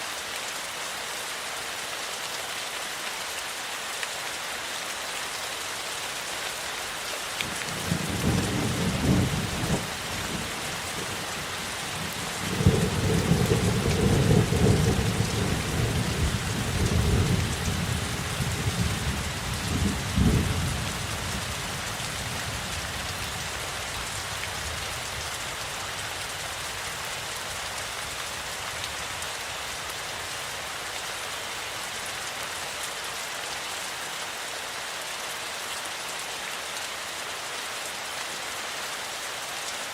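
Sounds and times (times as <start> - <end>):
heavy rain: 0.0 - 39.9
rolling thunder: 12.5 - 21.0.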